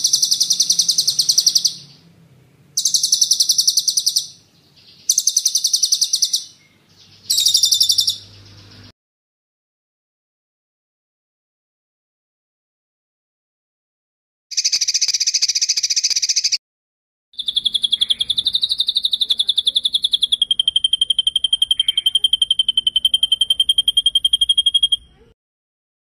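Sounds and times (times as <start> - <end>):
songbird rapid rolling trill: 0.0 - 8.9, 17.4 - 25.3.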